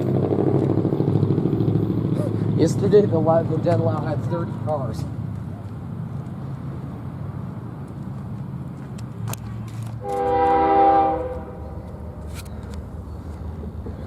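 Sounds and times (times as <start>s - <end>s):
locomotive air horn blast: 10.0s - 11.8s.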